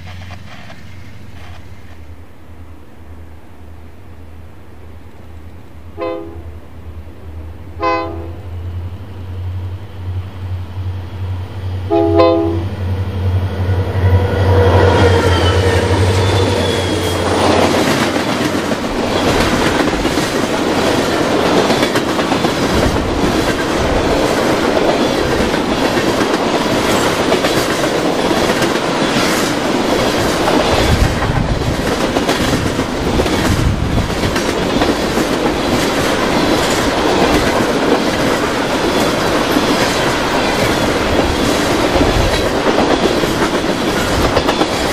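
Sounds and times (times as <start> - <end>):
railcars clattering over rails: 0.0 - 2.4, 7.5 - 44.9
diesel locomotive drone: 0.0 - 44.9
train horn toot: 6.0 - 6.5, 7.8 - 8.5, 11.9 - 12.8.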